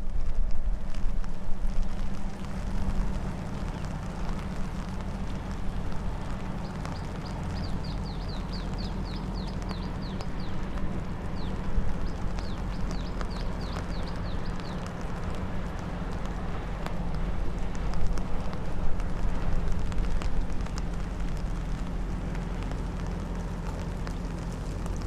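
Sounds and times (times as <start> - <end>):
low rumble: 0.0 - 25.0
bird chirping: 6.6 - 14.9.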